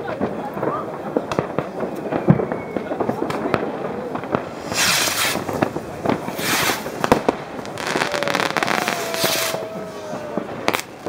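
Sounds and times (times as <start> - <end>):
firecracker bangs: 0.0 - 11.0
fireworks hissing bursts: 0.2 - 11.0
faint falling whistle: 2.2 - 3.0.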